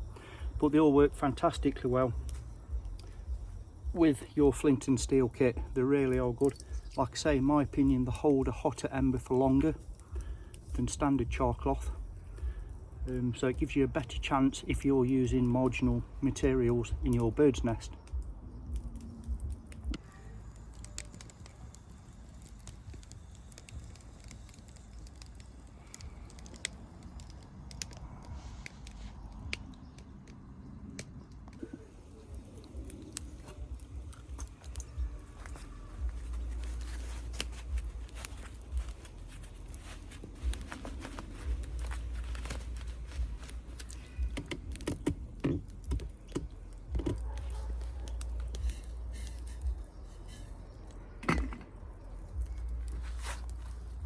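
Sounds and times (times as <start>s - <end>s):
low rumble: 0.0s - 9.1s, 30.8s - 54.0s
clicks and taps of handling: 41.8s - 48.8s.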